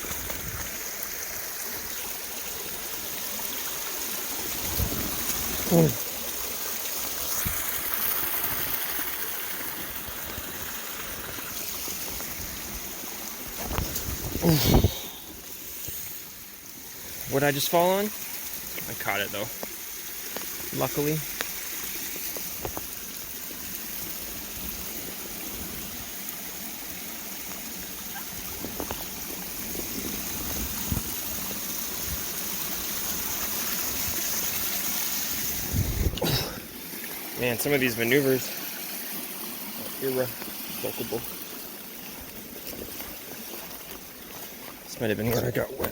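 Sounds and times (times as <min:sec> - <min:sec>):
creek water rushing: 0:00.0 - 0:45.9
stream running: 0:00.0 - 0:45.9.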